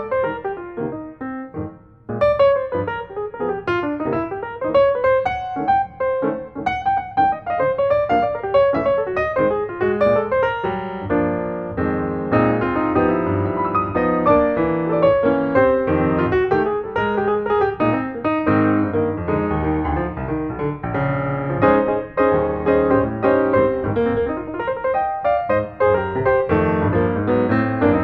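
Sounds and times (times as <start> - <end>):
flowing piano music: 0.0 - 28.0.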